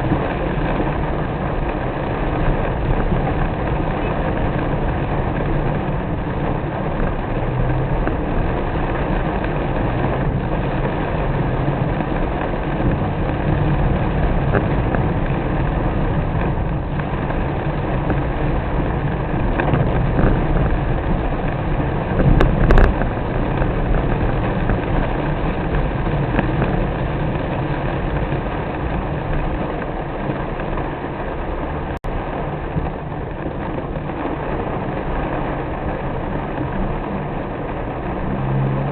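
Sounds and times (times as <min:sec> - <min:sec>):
car engine and tyres rumbling: 0:00.0 - 0:38.9
rain rushing: 0:00.0 - 0:38.9.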